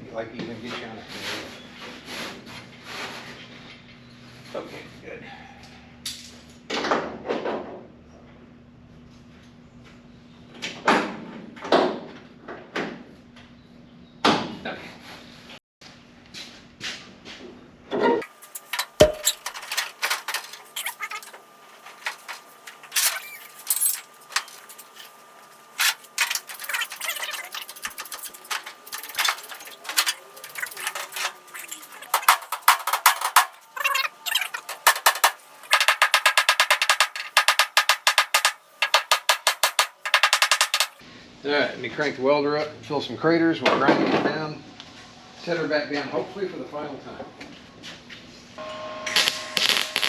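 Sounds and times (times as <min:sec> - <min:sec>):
welder crackling on sheet metal: 0:18.2 - 0:41.0, 0:49.6 - 0:50.0.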